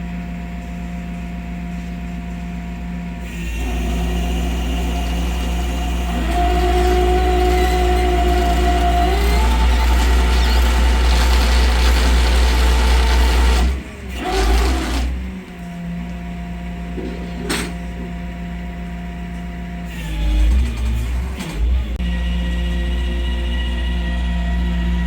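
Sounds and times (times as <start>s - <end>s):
vehicle engine rumbling: 3.6s - 14.2s.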